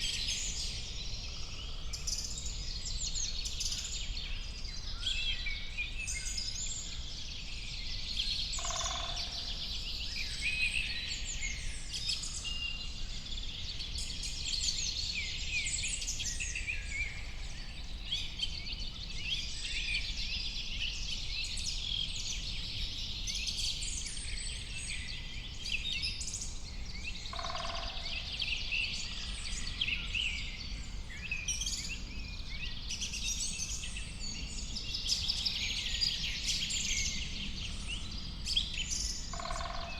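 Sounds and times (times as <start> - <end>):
birds singing and chirping: 21.4 - 39.9.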